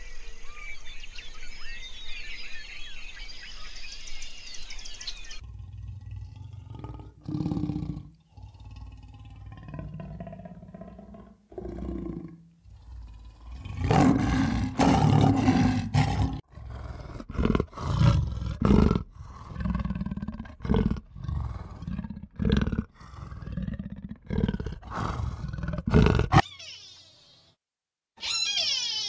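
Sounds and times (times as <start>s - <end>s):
big cat roaring and growling: 5.4s - 26.4s.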